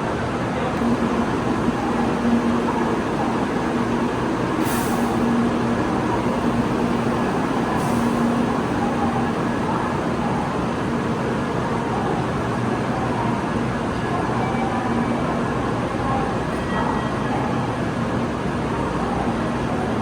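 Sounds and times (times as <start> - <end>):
low hum: 0.8 - 11.1
train rumbling: 0.8 - 14.4.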